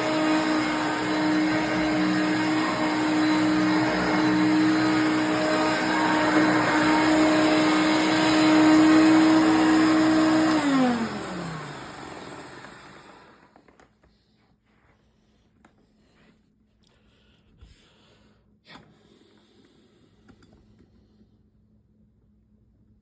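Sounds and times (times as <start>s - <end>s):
motor whine spinning down: 0.0s - 13.3s
vacuum cleaner running: 0.0s - 13.6s.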